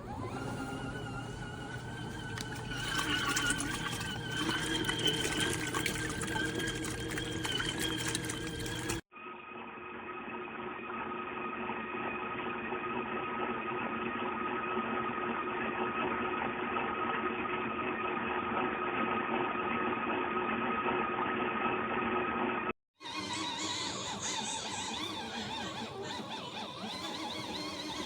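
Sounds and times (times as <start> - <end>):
small motor humming: 0.0 - 9.0, 23.0 - 28.0.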